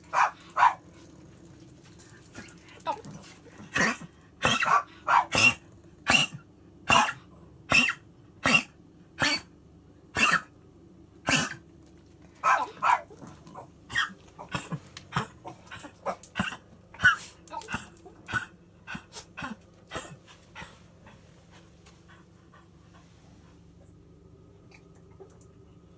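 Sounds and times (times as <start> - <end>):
dog coughing: 3.6 - 9.5, 10.2 - 10.5, 11.2 - 11.7, 13.9 - 20.7.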